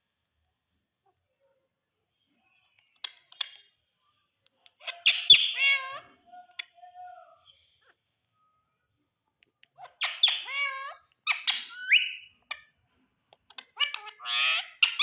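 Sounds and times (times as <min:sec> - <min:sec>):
parakeet squawking: 0:04.8 - 0:06.1, 0:09.8 - 0:12.3, 0:13.5 - 0:15.0.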